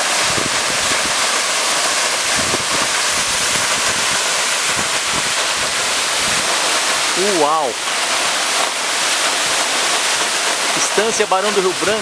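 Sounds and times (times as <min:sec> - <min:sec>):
waterfall rushing: 0:00.0 - 0:12.0
wind buffeting microphone: 0:00.1 - 0:01.3, 0:02.2 - 0:06.6.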